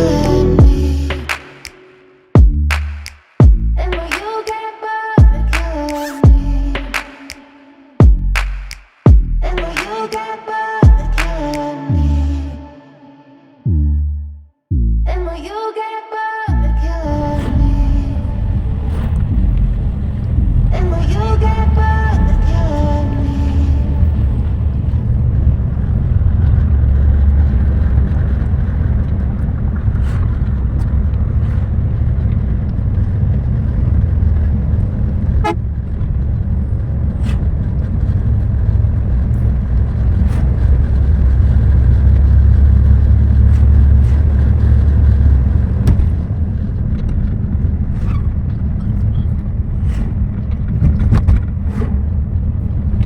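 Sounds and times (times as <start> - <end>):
bus engine and road rumble: 0.0 - 1.4, 5.3 - 7.0, 9.2 - 9.8, 16.6 - 53.0.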